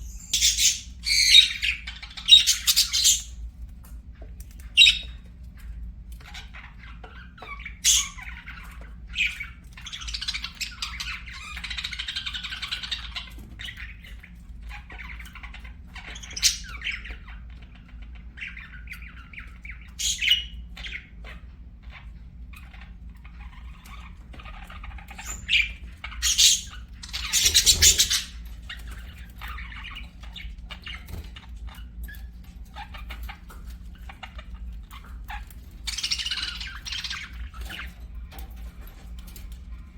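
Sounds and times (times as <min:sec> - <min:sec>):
budgerigars chattering and warbling: 0:00.0 - 0:03.4, 0:04.5 - 0:39.4
loud chirps and squawks: 0:00.0 - 0:03.4, 0:06.8 - 0:08.6, 0:22.6 - 0:31.8, 0:35.0 - 0:37.9.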